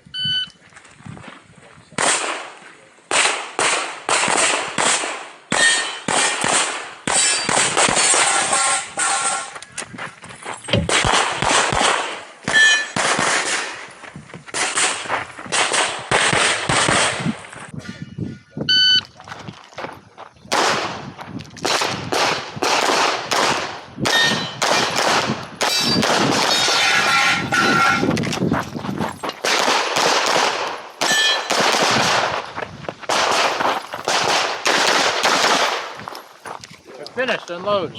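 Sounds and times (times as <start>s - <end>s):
pistol shots: 2.0s - 9.4s, 10.9s - 13.9s, 14.6s - 17.3s, 20.5s - 21.0s, 21.6s - 27.4s, 29.4s - 32.4s, 33.1s - 36.0s
steel targets ringing: 5.5s - 6.4s, 7.1s - 9.6s, 12.5s - 13.0s, 24.1s - 25.0s, 25.6s - 28.1s, 31.0s - 31.5s.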